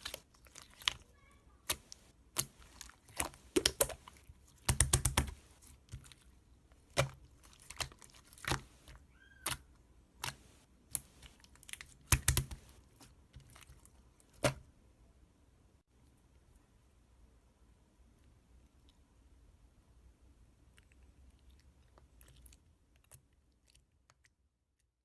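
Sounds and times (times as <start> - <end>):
slime squished clicking and popping: 1.6 - 6.2, 6.8 - 9.6, 10.2 - 14.6.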